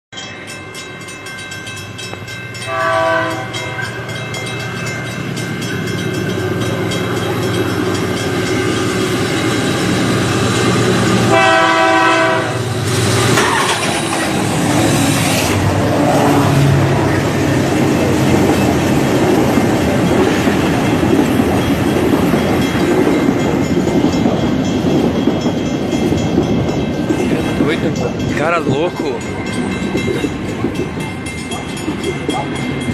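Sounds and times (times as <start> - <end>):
loud multi-tone horn: 2.7 - 3.8, 11.2 - 12.8.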